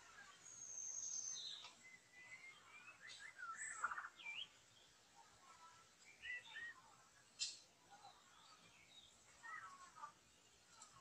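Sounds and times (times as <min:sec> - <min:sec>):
songbird whistling and chirping: 0:00.2 - 0:04.9, 0:06.0 - 0:06.9.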